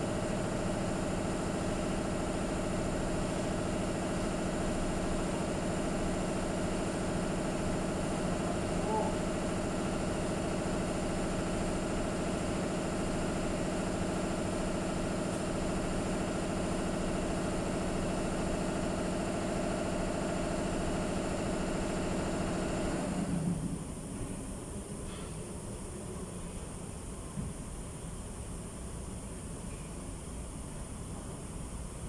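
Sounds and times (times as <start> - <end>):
motor running steadily: 0.0 - 23.9.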